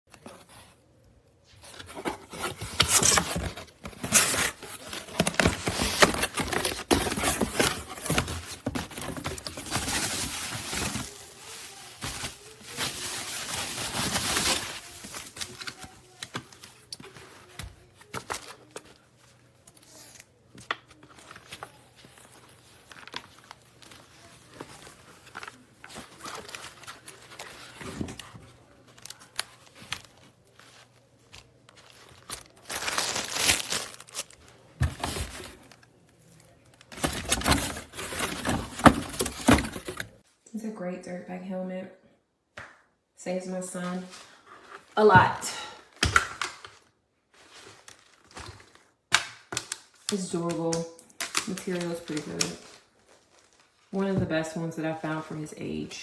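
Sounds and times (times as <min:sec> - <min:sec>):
packaging crinkling and tearing: 0:01.8 - 0:19.0, 0:21.0 - 0:40.2, 0:46.2 - 0:50.3, 0:51.1 - 0:53.9.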